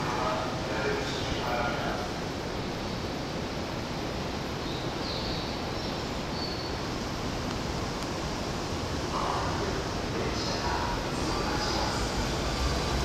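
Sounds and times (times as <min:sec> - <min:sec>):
train wheels rumbling on rails: 0:00.0 - 0:03.5, 0:06.1 - 0:13.0.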